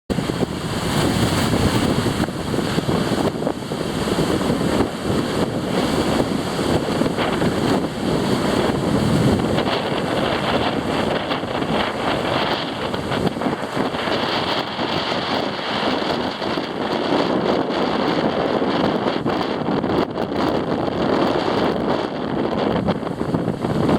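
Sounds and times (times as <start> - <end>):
waves washing: 0.1 - 23.9
wind buffeting microphone: 0.1 - 23.9.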